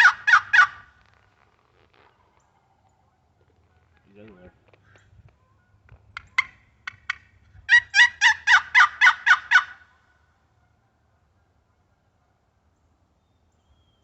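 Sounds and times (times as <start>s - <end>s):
turkey box call notes: 0.0s - 0.9s, 5.5s - 9.9s.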